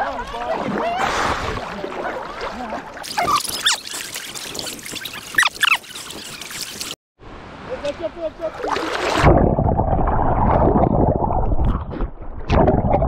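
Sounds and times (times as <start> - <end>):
water splashing and trickling: 0.0 - 7.0, 8.4 - 11.6
short high squeaks: 3.1 - 7.0.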